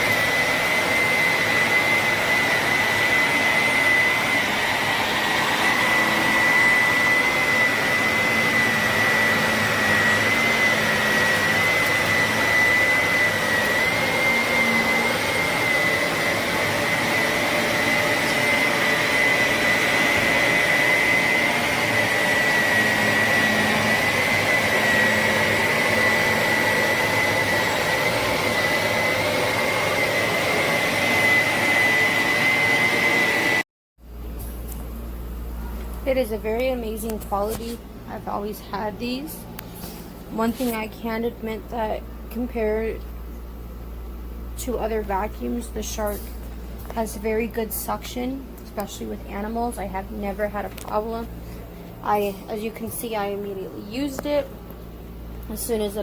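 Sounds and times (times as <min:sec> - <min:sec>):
upright vacuum running: 0:00.0 - 0:43.1.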